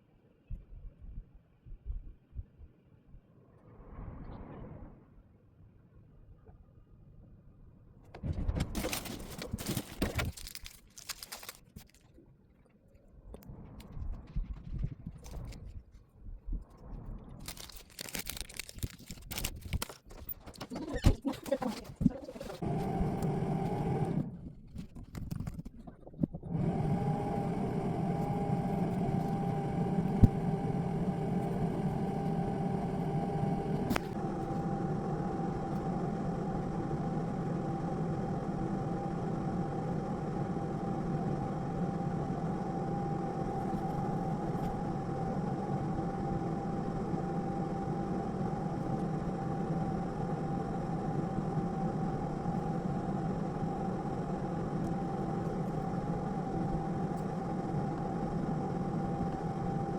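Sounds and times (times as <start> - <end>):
motor humming: 20.6 - 25.6, 26.2 - 59.9.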